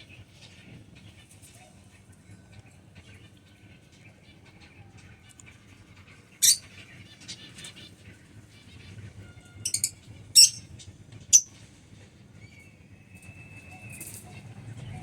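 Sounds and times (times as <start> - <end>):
lovebirds chirping shrilly: 6.3 - 7.6, 9.6 - 10.7.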